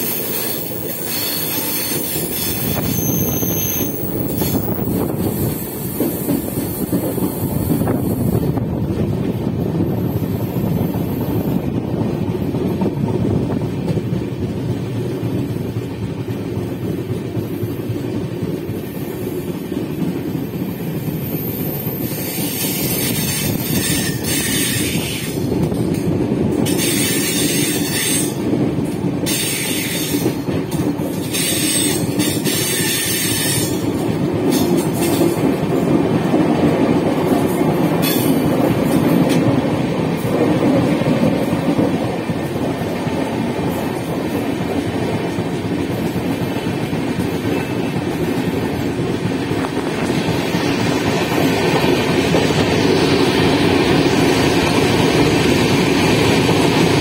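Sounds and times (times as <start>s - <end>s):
high-pitched wheel squeal: 0.0s - 4.7s
train wheels rumbling on track: 0.0s - 57.0s.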